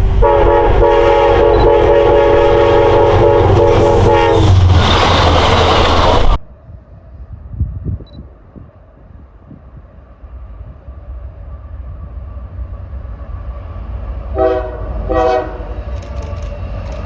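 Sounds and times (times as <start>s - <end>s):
train air horn: 0.0s - 4.6s, 14.3s - 16.6s
train rushing past: 0.0s - 17.0s.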